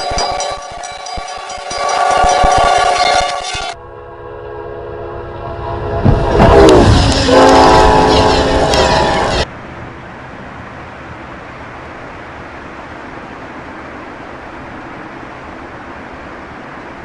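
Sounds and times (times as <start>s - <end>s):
train rushing past: 0.0s - 11.5s
locomotive horn: 1.7s - 9.4s.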